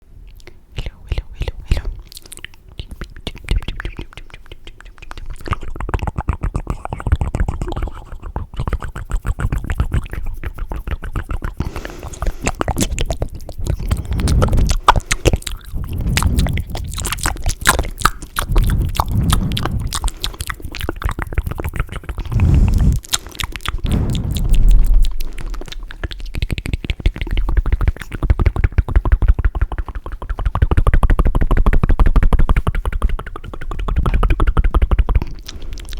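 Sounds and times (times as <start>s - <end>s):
tongue clicks: 0.3s - 35.9s
tongue fluttering: 1.6s - 35.9s
gulping surges: 10.9s - 27.5s.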